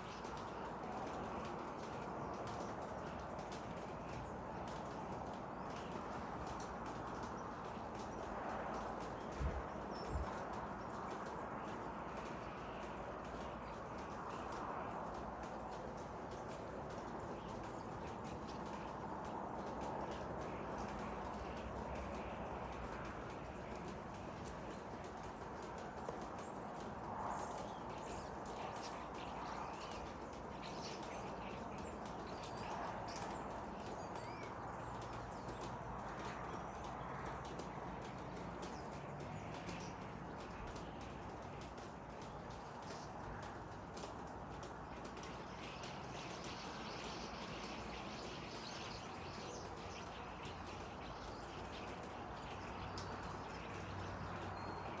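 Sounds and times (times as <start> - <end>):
small birds chirping: 0.0 - 55.0
steady background hiss: 39.2 - 55.0.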